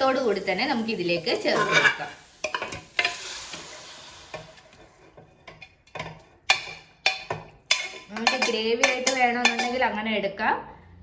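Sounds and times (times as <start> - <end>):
food sizzling in hot pan: 0.0 - 8.5
spoon knocking against pan: 5.4 - 9.8.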